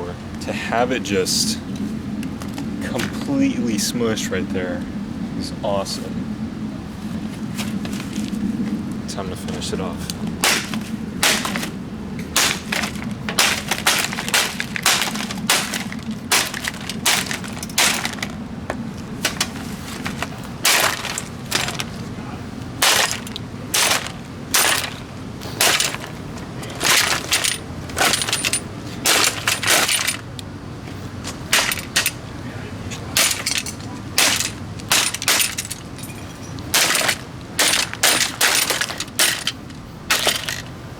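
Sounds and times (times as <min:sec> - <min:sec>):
plastic fan cracking and crunching: 0:09.6 - 0:40.8.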